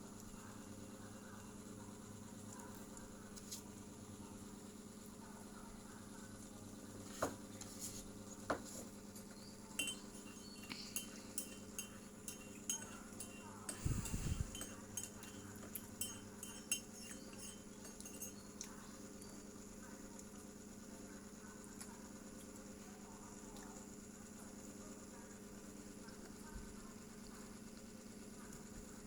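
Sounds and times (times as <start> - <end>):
cutlery and dishes clinking: 9.8 - 18.7.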